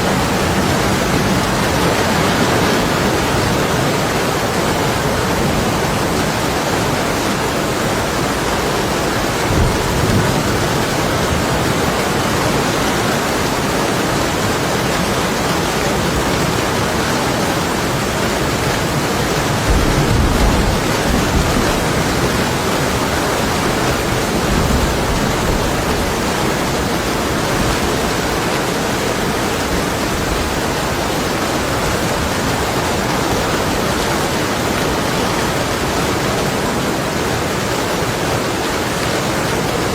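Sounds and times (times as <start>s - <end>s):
heavy rain on window glass: 0.0s - 39.9s
distant thunder rumbling: 8.8s - 12.0s, 19.2s - 28.4s.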